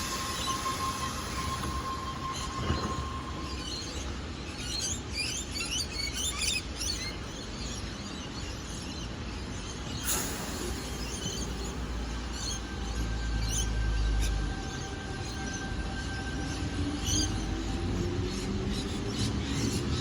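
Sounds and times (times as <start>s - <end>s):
steady high tone: 0.0s - 4.5s, 10.0s - 19.1s
rail and station rumble: 0.0s - 20.0s.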